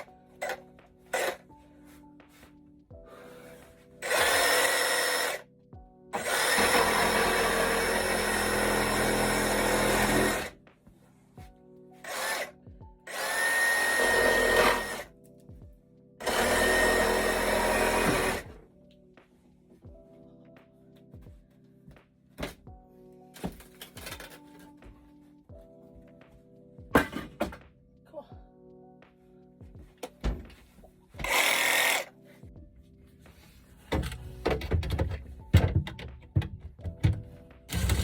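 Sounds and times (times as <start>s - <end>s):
faint background music: 0.0s - 38.0s
power tool whining: 4.0s - 5.4s, 6.2s - 10.5s, 13.1s - 15.1s, 16.2s - 18.5s, 31.2s - 32.1s.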